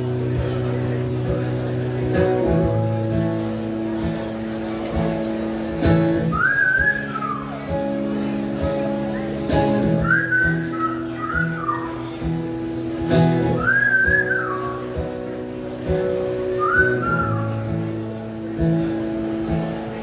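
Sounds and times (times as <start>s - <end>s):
strummed acoustic guitar: 0.0s - 20.0s
whistled melody: 6.3s - 7.6s, 10.0s - 12.0s, 13.6s - 14.9s, 16.6s - 17.5s.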